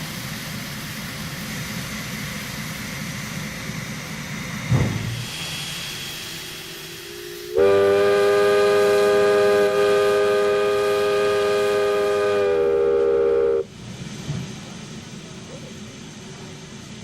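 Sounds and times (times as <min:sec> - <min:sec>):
steam locomotive whistle blast: 0:06.7 - 0:13.7.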